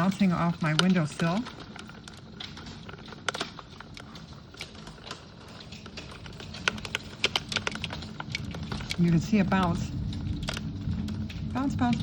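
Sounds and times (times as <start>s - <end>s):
hailstones ticking on windowsill: 0.0s - 12.0s.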